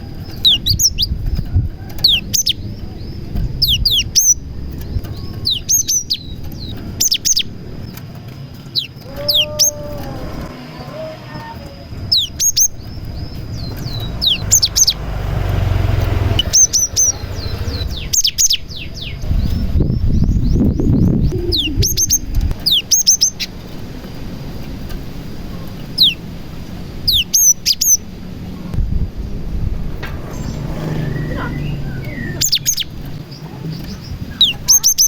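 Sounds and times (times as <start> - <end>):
low rumble: 0.0 - 8.0, 9.2 - 22.9, 28.3 - 34.6.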